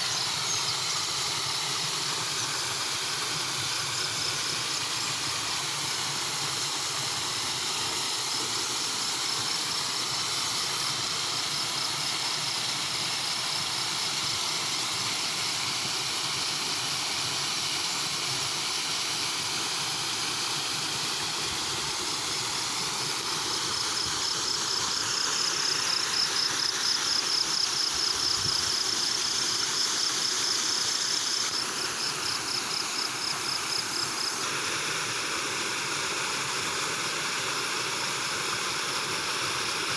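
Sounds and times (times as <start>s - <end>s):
insect trill: 0.0s - 13.4s, 20.6s - 34.4s
water rushing: 0.0s - 17.4s, 18.5s - 27.6s.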